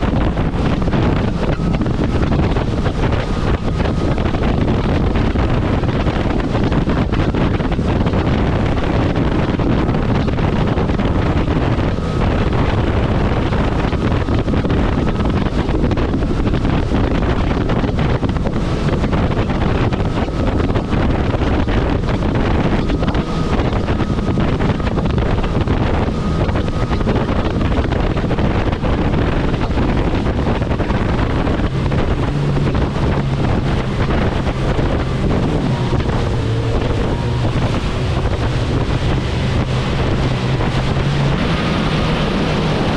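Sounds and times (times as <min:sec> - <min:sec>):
low engine hum: 0:00.0 - 0:42.9
water rushing past: 0:00.0 - 0:42.9
wind buffeting microphone: 0:00.0 - 0:42.9.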